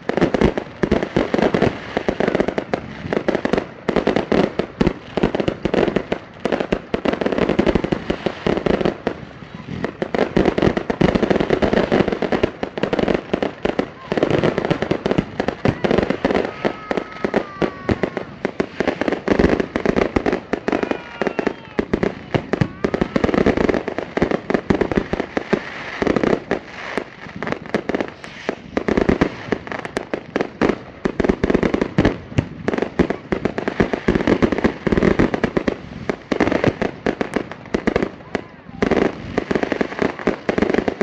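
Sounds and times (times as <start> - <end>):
fireworks bangs and crackles: 0.0 - 41.0
firework whistles: 14.0 - 23.7, 28.0 - 29.4.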